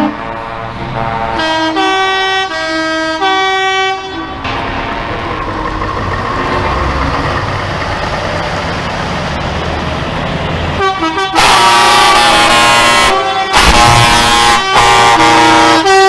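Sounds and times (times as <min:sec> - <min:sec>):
truck air horns blasting: 0:00.0 - 0:05.5, 0:10.6 - 0:16.0
truck engines running: 0:00.0 - 0:16.0.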